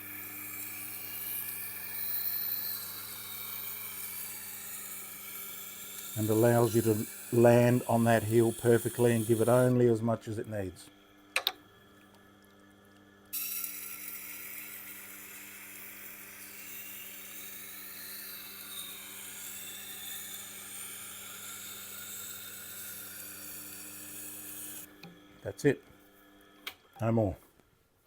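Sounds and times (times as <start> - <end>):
motor hum: 0.0 - 25.4
knife grinding on sharpening wheel: 0.3 - 9.8, 13.4 - 24.9.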